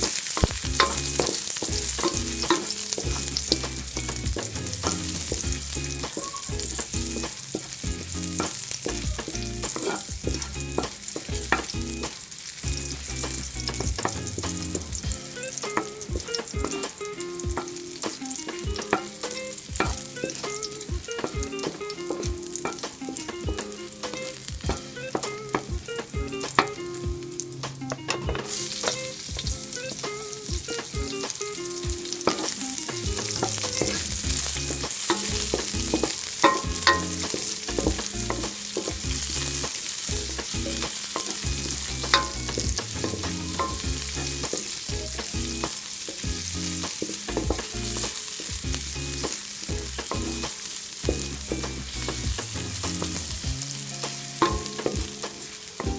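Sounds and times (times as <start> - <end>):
utensil scraping a pan: 0.0 - 12.2, 32.1 - 50.8
food sizzling in a pan: 0.0 - 55.9.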